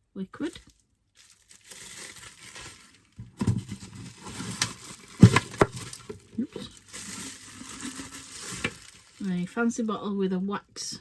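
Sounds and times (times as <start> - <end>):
light rustling of packaging: 0.4 - 10.0
small items knocking on a table: 5.2 - 6.2.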